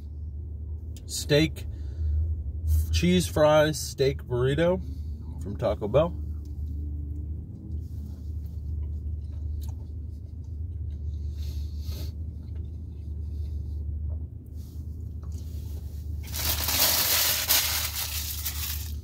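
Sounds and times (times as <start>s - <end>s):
low hum inside a car: 0.0s - 19.0s
paper wrapper crinkling: 16.2s - 19.0s.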